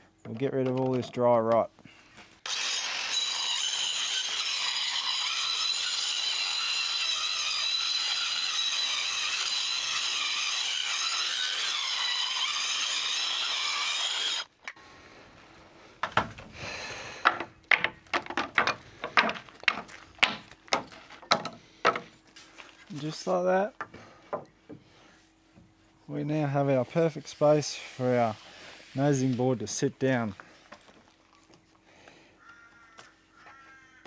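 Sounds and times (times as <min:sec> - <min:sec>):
power saw cutting timber: 0:02.4 - 0:14.5, 0:16.0 - 0:25.1, 0:26.2 - 0:30.9
wooden knocks and clatters: 0:16.0 - 0:16.6, 0:17.2 - 0:22.1.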